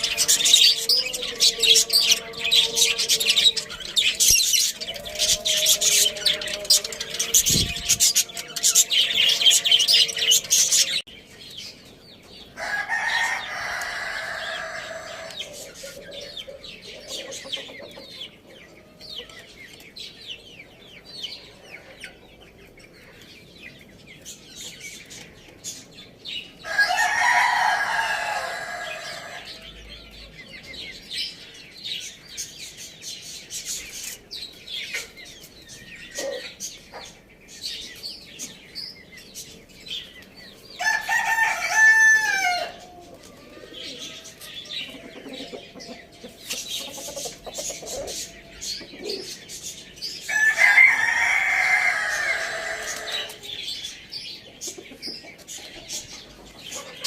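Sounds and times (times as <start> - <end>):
rooster crowing: 0.0 - 11.0, 12.6 - 15.6, 26.6 - 30.2, 40.8 - 44.8, 50.3 - 53.6
small birds chirping: 0.0 - 57.0.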